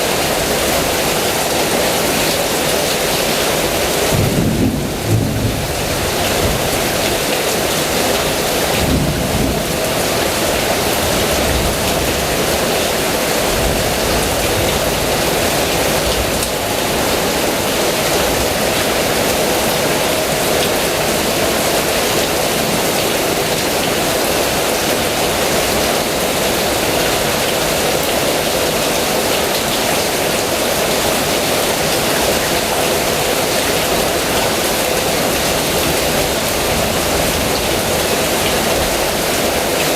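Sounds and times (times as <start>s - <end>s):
heavy rain falling: 0.0s - 39.9s
low rumble of thunder: 4.1s - 7.2s, 8.7s - 9.9s.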